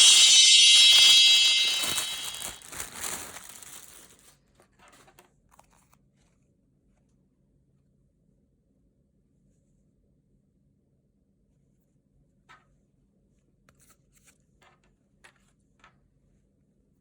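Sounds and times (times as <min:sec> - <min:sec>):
high-pitched ringing tone: 0:00.0 - 0:03.5
packaging crinkling: 0:00.7 - 0:04.4.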